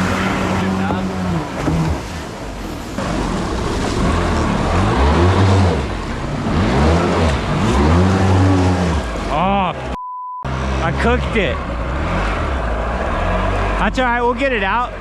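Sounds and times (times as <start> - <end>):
jet ski engine revving: 0.1 - 9.6
water hissing: 2.5 - 9.2.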